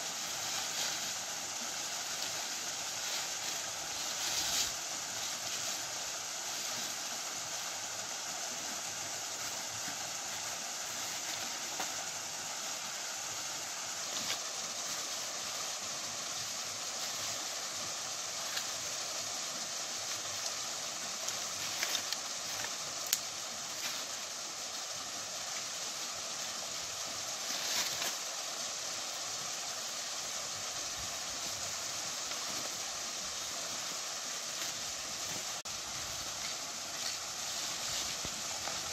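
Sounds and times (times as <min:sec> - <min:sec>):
waterfall rushing over rocks: 0:00.0 - 0:38.9.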